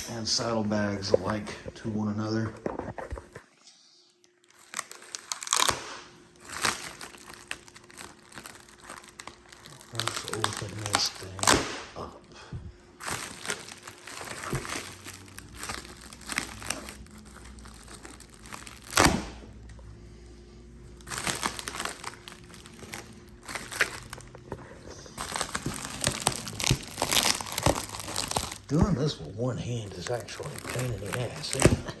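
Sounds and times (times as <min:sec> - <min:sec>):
packaging crinkling and rustling: 0:04.4 - 0:11.8, 0:12.9 - 0:19.8, 0:20.8 - 0:32.0.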